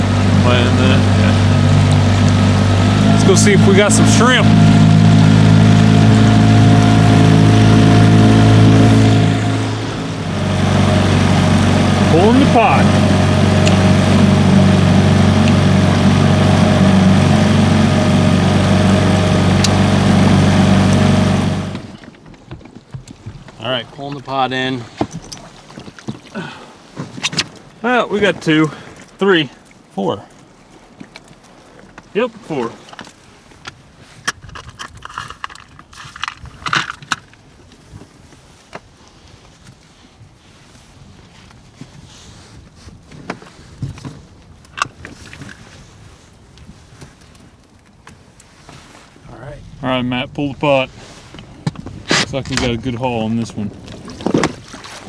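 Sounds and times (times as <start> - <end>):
small engine running loudly: 0.0 - 22.0
shrimp pot rattling and clicking: 34.3 - 37.4.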